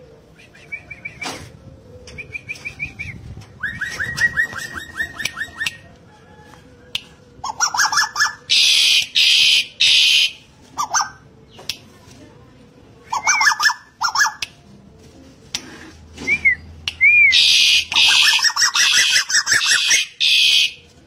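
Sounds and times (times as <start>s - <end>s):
bird calling: 7.5s - 11.2s, 17.0s - 20.8s.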